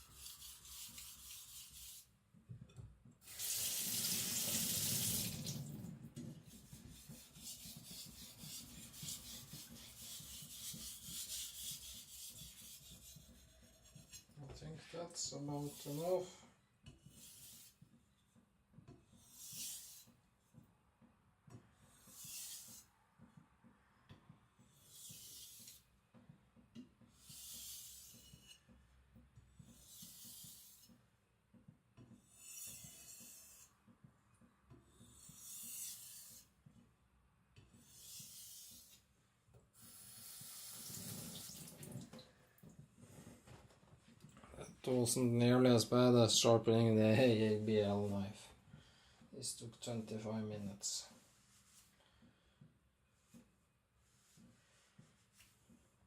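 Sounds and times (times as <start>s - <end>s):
knife sharpening on whetstone: 17.1s - 17.8s, 19.2s - 20.1s, 22.0s - 22.8s, 27.2s - 28.6s, 29.8s - 30.9s, 32.3s - 33.7s, 35.1s - 36.5s, 37.8s - 39.0s.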